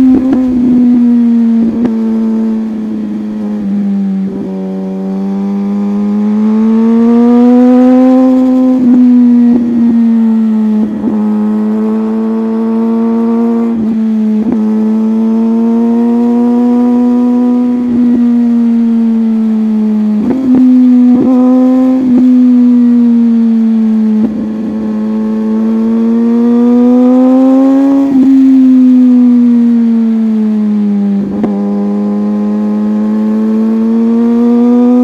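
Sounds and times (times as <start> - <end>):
motorcycle engine at high revs: 0.0 - 35.0.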